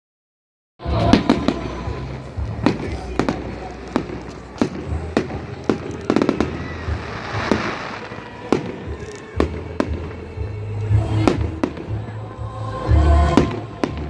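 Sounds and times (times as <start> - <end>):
firework bangs: 1.0 - 10.2
firework crackling: 1.0 - 10.3.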